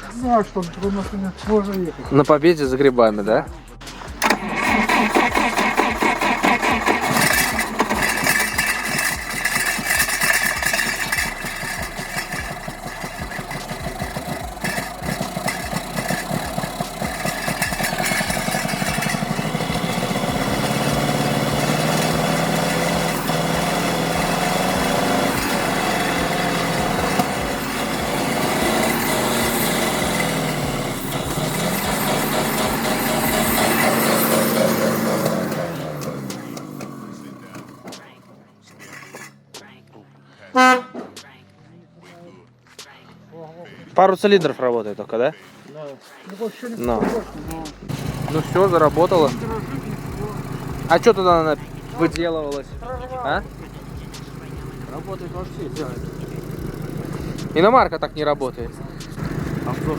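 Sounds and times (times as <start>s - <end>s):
car engine running unevenly: 3.5s - 38.2s, 46.9s - 59.9s.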